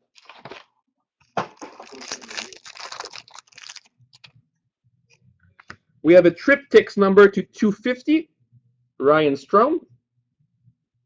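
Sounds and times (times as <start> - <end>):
card pack wrapper tearing and crinkling: 1.5 - 4.3.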